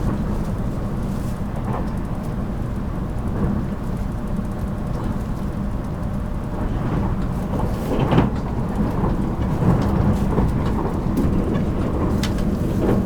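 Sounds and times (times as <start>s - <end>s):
train wheels rumbling on rail: 0.0s - 13.0s
wheels knocking on rail joints: 7.2s - 13.0s.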